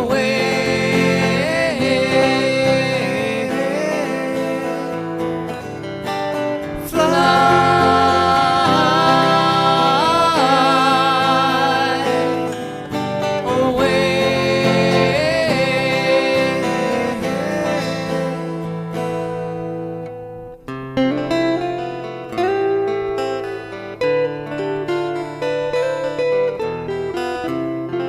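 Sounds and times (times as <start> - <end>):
person singing with vibrato: 0.0 - 5.7, 6.6 - 19.5
strummed acoustic guitar: 0.0 - 28.0.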